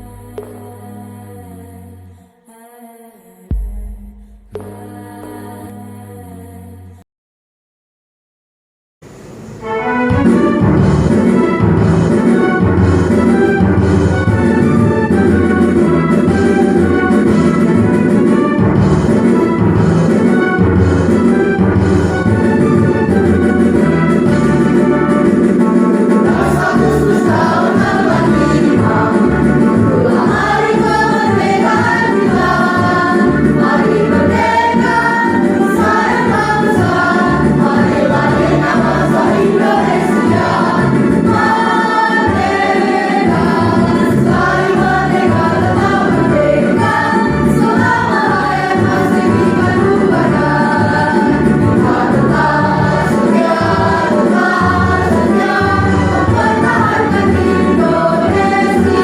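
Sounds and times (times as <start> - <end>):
choir singing in unison: 0.0 - 3.6, 26.1 - 59.0
backing track with low beat: 3.5 - 5.5.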